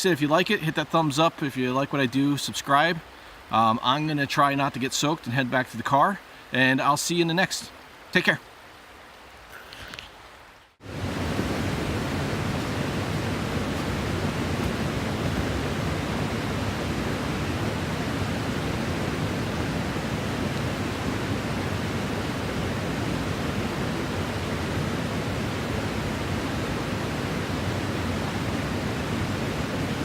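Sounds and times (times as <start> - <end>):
flowing water rushing: 0.0 - 30.0.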